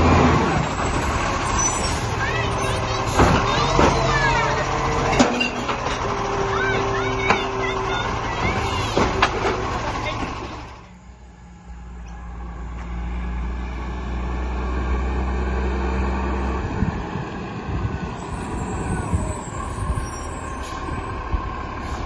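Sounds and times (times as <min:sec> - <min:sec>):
garbage truck engine drone: 0:00.0 - 0:22.0.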